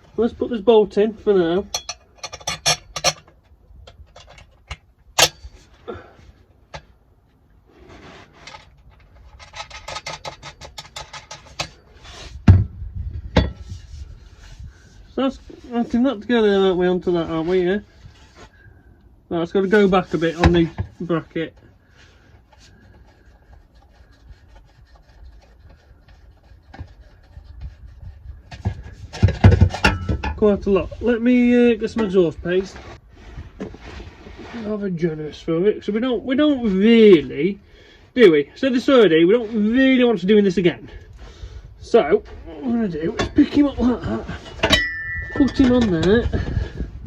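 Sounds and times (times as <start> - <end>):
exhaust parts scraping: 0.0 - 47.0
metal clinks and scrapes: 1.6 - 5.7, 7.9 - 12.4, 28.5 - 31.0, 43.2 - 46.8.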